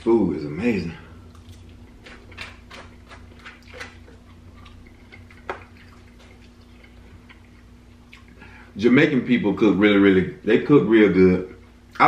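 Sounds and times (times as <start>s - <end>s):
chewing and lip smacking: 1.2s - 8.5s.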